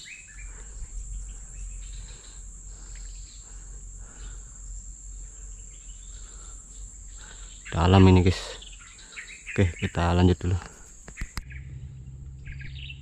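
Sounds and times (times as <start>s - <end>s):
faint chirps: 0.0s - 13.0s
insects droning: 0.0s - 13.0s
low rumble: 0.3s - 7.6s, 11.3s - 13.0s.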